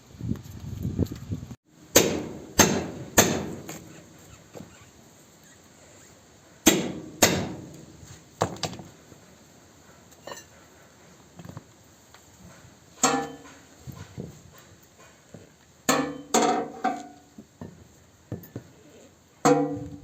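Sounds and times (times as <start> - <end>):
hammer striking: 1.9 - 3.8, 6.6 - 7.8, 13.0 - 13.6, 15.9 - 17.2, 19.5 - 20.0.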